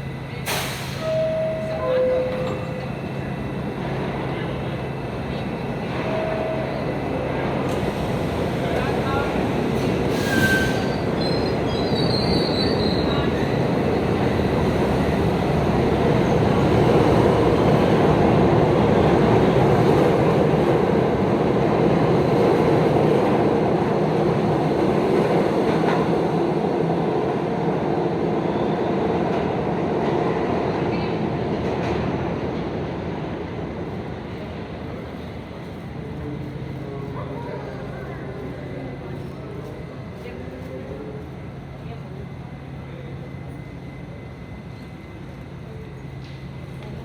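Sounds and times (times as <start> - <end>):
subway train wheels rumbling: 0.0 - 47.0
high wheel squeal: 10.1 - 13.3.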